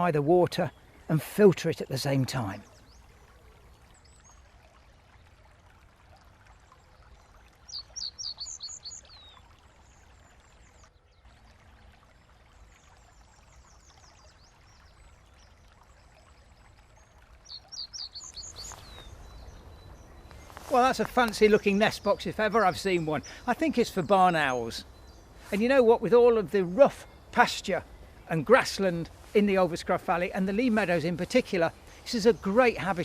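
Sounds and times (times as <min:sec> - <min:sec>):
songbird singing descending notes: 0:17.4 - 0:26.8
brook rushing: 0:18.3 - 0:33.0.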